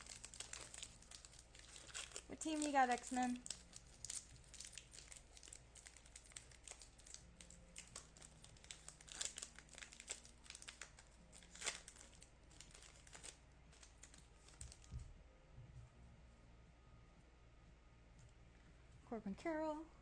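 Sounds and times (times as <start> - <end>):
foil wrapper crinkling and tearing: 0.0 - 15.0.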